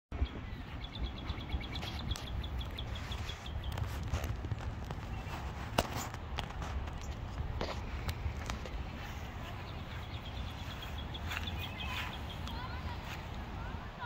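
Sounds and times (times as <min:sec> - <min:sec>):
songbird trilling: 0:00.2 - 0:03.9, 0:09.0 - 0:13.2.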